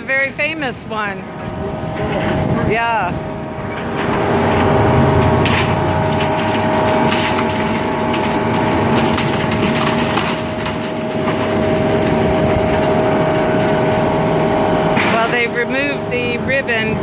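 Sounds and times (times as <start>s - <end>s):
demolition machine running: 0.0s - 17.0s
timber cracking and splintering: 3.7s - 15.5s.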